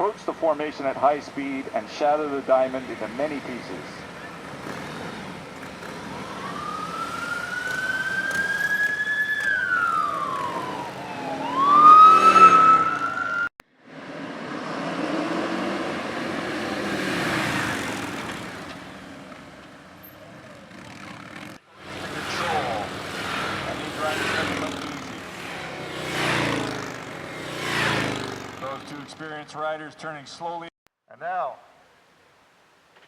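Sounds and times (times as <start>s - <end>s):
motorcycle engines passing: 0.0s - 30.3s
police siren wailing: 5.7s - 13.5s, 21.8s - 26.2s.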